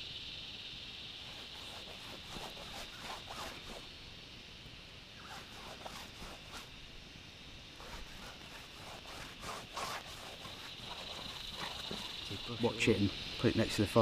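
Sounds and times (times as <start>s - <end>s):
rubbing and scraping on canvas: 1.2s - 3.8s, 5.2s - 6.7s, 7.8s - 12.5s.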